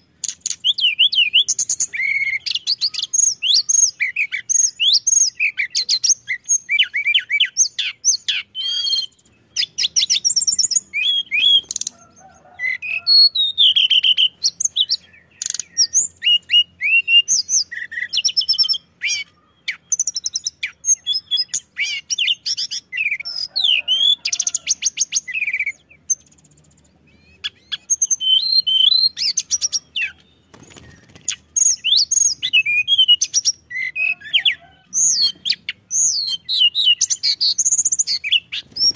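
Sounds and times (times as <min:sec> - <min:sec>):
songbird singing chirps and trills: 0:00.0 - 0:38.9.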